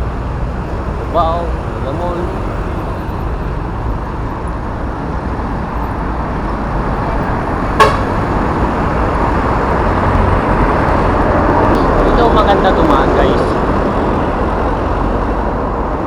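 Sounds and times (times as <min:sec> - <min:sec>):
highway traffic noise: 0:00.0 - 0:16.0.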